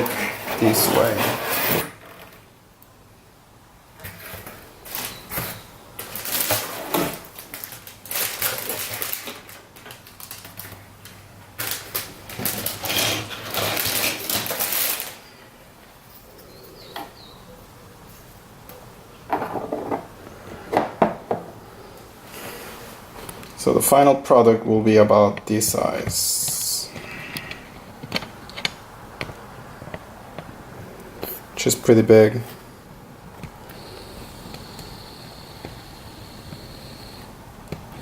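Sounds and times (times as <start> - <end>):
model kit parts rustling: 4.0 - 10.8, 11.6 - 15.2.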